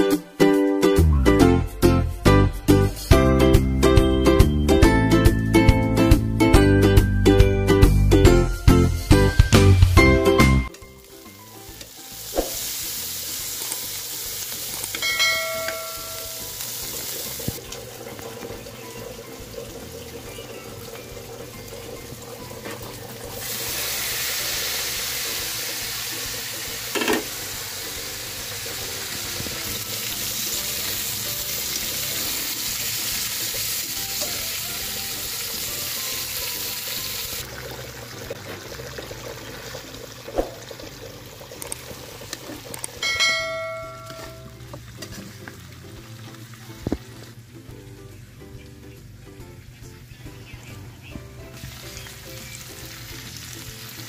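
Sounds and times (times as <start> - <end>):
fish sizzling in hot oil: 10.8 - 43.0, 51.6 - 54.0
ringing clink: 43.0 - 44.4.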